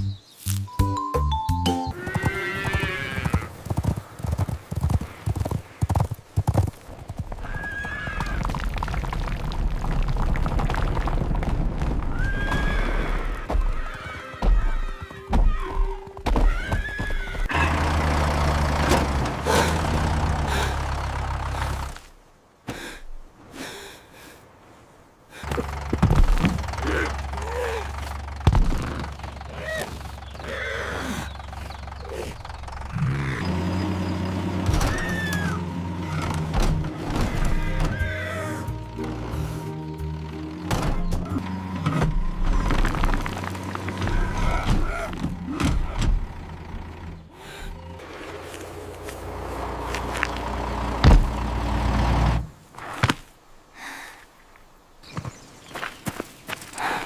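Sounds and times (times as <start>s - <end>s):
horse whinny: 2.0s - 3.6s, 7.4s - 8.5s, 12.1s - 17.6s, 28.8s - 31.3s, 34.7s - 36.3s, 37.0s - 38.7s
hoof clip-clops: 2.0s - 17.5s.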